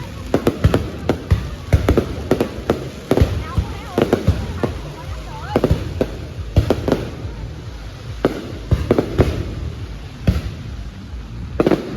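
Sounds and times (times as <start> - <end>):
distant explosions rumbling: 0.0 - 11.9
fireworks bangs: 0.0 - 11.9.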